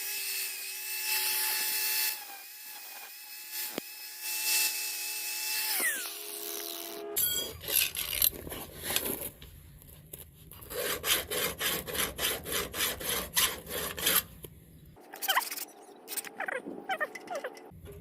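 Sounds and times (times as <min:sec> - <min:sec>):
hand tool scraping metal: 0:10.5 - 0:14.3.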